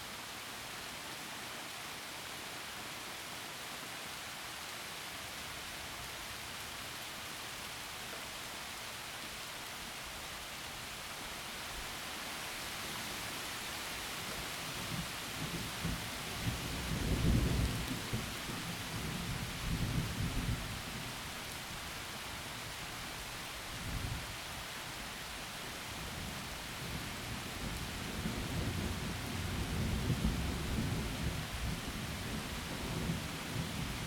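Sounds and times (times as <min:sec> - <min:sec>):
heavy rain falling: 0:03.4 - 0:34.0
low rolling thunder: 0:15.4 - 0:20.6, 0:27.6 - 0:34.0.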